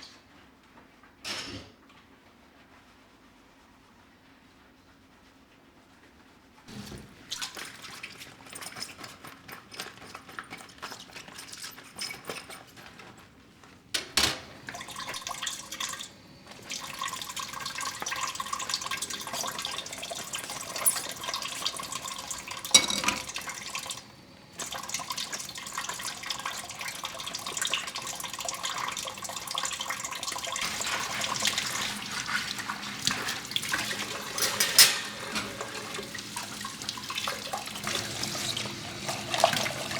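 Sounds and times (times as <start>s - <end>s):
tap water running into sink: 6.7s - 12.7s, 14.0s - 39.9s.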